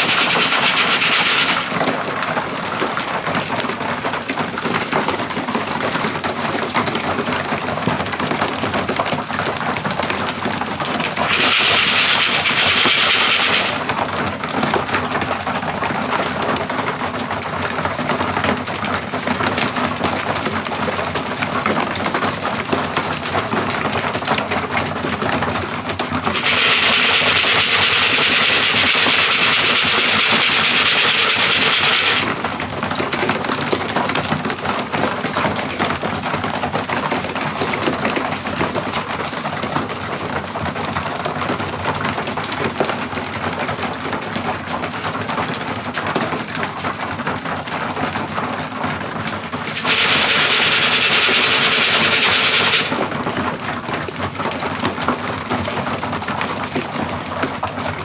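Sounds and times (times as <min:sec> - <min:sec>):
loud hiss: 0:00.0 - 0:01.8, 0:11.0 - 0:13.9, 0:26.3 - 0:32.4, 0:49.6 - 0:53.1
pigeons clicking and flapping wings: 0:00.0 - 0:24.9, 0:26.2 - 0:35.8, 0:49.3 - 0:53.5.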